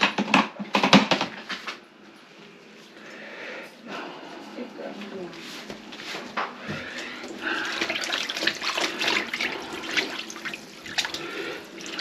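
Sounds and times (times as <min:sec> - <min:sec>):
water splashing into a sink: 0:07.0 - 0:12.0.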